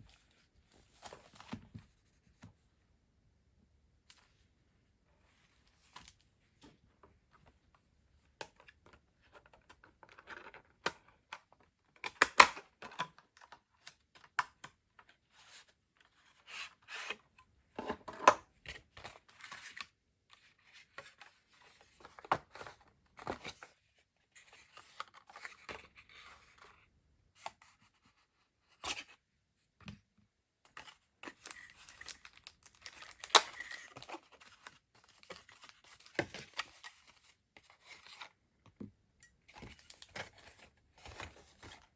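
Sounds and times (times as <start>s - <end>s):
packaging tearing and crinkling: 31.4s - 34.0s.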